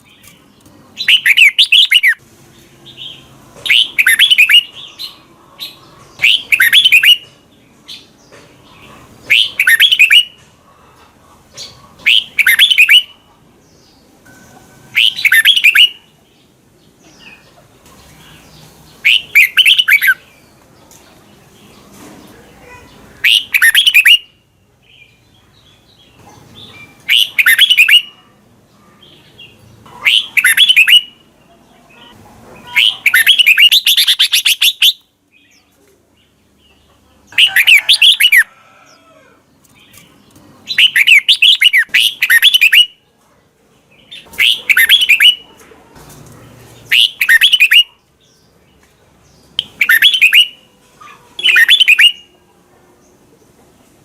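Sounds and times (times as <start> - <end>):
bulbul singing warbled phrases: 0.0 - 2.2, 2.8 - 7.3, 8.7 - 10.4, 11.6 - 14.0, 14.9 - 20.5, 22.4 - 38.5, 39.7 - 43.0, 43.8 - 45.6, 46.8 - 48.7, 49.4 - 52.5.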